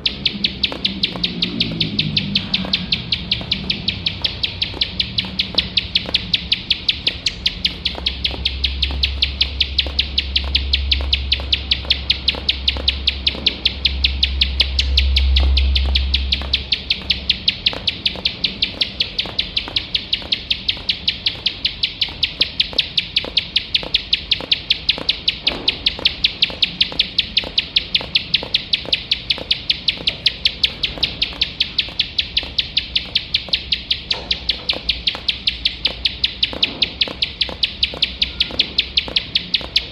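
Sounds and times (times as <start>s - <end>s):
bird clicking call: 0.0s - 39.9s.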